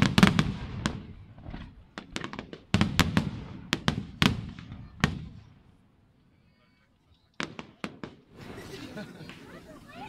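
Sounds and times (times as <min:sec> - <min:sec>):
fireworks bangs and crackles: 0:00.0 - 0:05.7, 0:07.4 - 0:10.0.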